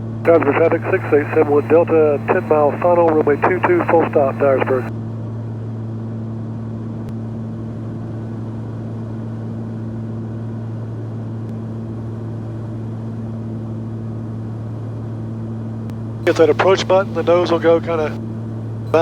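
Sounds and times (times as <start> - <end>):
propeller plane engines droning: 0.3 - 4.9, 16.3 - 18.2.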